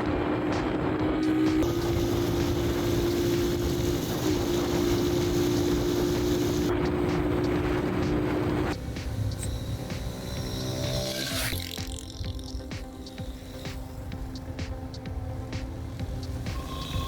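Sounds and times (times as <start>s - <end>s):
wind noise: 0.0s - 10.3s
motorcycle engine running: 0.0s - 17.0s
music: 0.0s - 17.0s.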